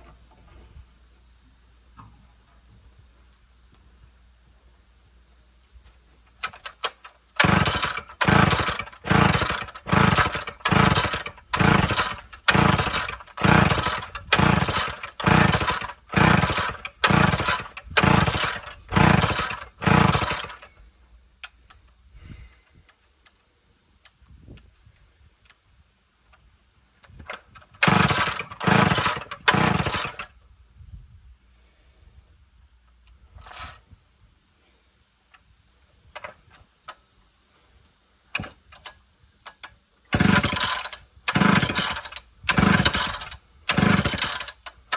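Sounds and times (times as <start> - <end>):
chainsaw starter cord pulls: 6.4 - 20.7, 27.1 - 30.4, 38.4 - 44.9
engine turning over: 6.4 - 20.7, 27.4 - 30.4, 40.1 - 44.9.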